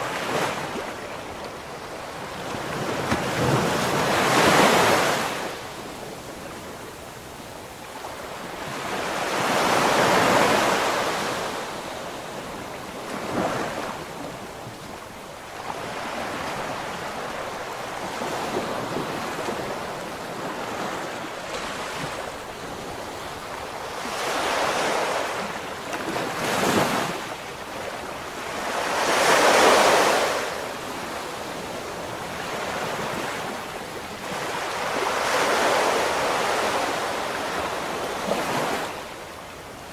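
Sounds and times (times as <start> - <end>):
ocean waves breaking: 0.0 - 6.5, 15.6 - 39.2.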